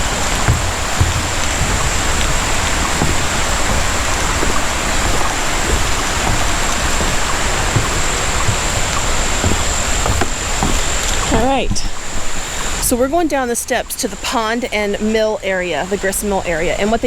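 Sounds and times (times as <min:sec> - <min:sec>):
creek water rushing over rocks: 0:00.0 - 0:12.8.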